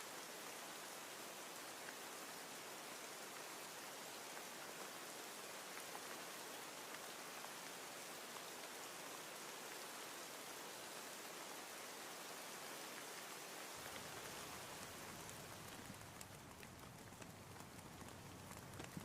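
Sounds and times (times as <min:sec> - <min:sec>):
quiet rain: 0:00.0 - 0:19.0
raindrops ticking: 0:13.8 - 0:19.0.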